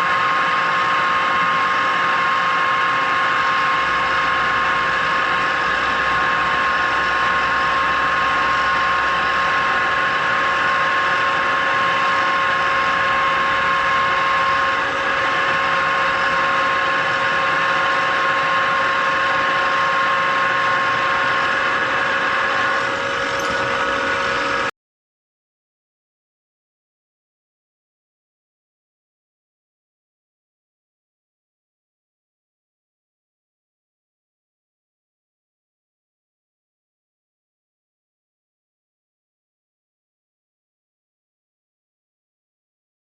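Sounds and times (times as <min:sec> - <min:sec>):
electric drill whining: 0:01.4 - 0:24.7.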